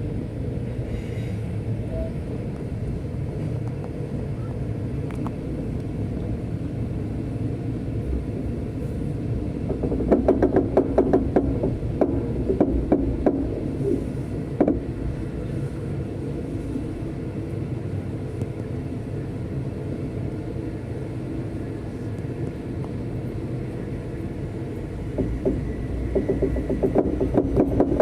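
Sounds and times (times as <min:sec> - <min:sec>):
train rumbling: 0:00.0 - 0:28.0
wheels clicking over track: 0:09.6 - 0:15.2, 0:25.0 - 0:28.0.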